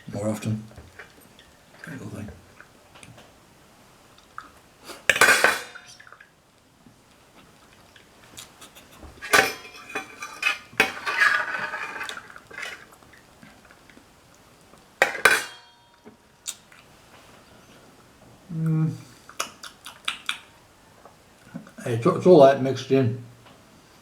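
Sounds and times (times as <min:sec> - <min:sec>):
cutlery clattering against dishes: 0:05.1 - 0:06.2, 0:08.6 - 0:12.9, 0:15.0 - 0:16.2.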